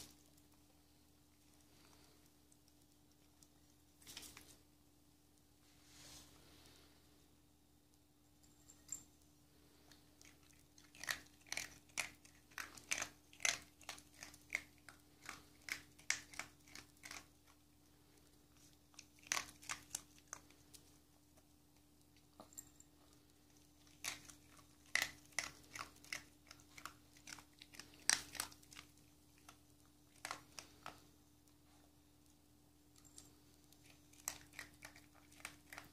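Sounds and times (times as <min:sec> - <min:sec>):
dog crunching dry kibble: 0:09.8 - 0:21.1, 0:21.8 - 0:31.2, 0:33.0 - 0:35.9.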